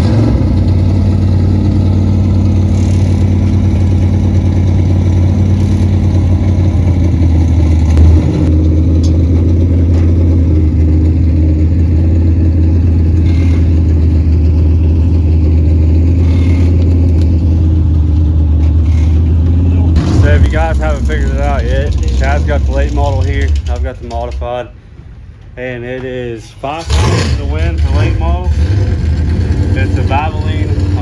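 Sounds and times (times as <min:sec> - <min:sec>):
engine running with low drone: 0:00.0 - 0:31.0.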